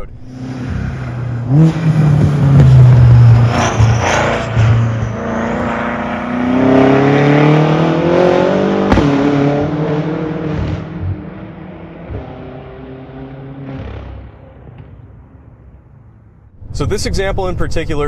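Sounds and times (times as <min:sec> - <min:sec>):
car engine revving: 0:00.0 - 0:15.9
exhaust crack: 0:00.7 - 0:05.2.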